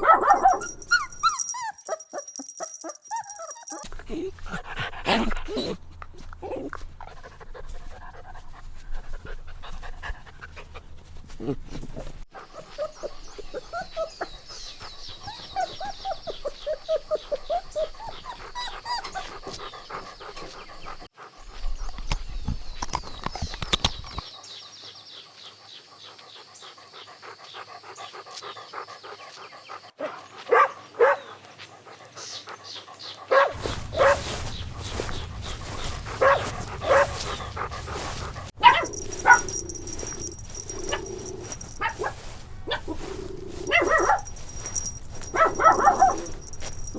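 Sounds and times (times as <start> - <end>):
puppies yipping and whimpering: 0.0 - 4.4, 10.5 - 21.0, 33.5 - 46.9
puppies barking: 0.0 - 8.5, 11.8 - 21.1, 33.3 - 46.9.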